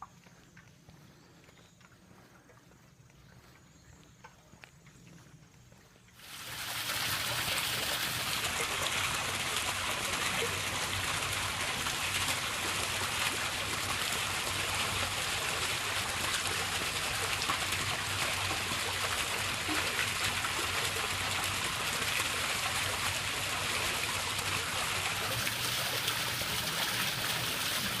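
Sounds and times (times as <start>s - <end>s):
stream water rushing: 6.2s - 28.0s.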